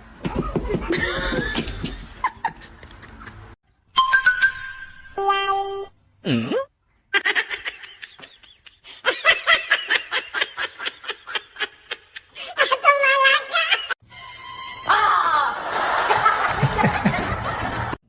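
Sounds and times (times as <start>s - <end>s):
person laughing: 0.3s - 3.5s, 6.3s - 12.8s, 15.2s - 18.0s.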